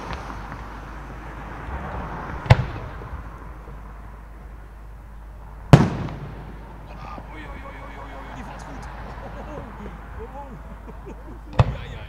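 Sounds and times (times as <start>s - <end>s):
loud firework bangs: 2.3s - 3.3s, 5.7s - 12.0s.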